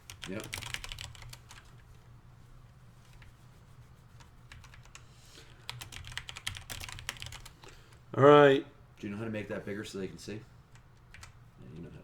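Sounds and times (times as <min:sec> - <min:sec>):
typing on computer keyboard: 0:00.1 - 0:01.7, 0:05.6 - 0:07.5.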